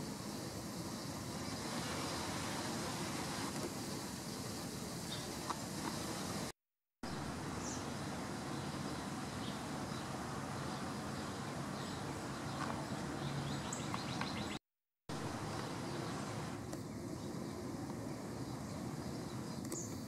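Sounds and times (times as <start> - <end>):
steady background noise: 7.1 - 20.0.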